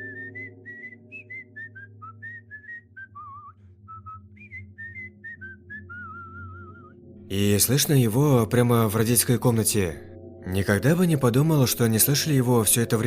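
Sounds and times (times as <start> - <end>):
low steady drone: 0.0 - 2.0, 6.6 - 13.0
person whistling eerie tune: 0.0 - 7.2.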